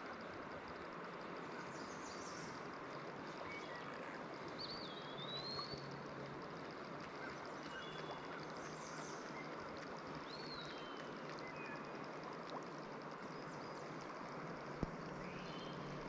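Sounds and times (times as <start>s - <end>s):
river water running: 0.0s - 16.0s
high whistled bird calls: 4.6s - 5.8s.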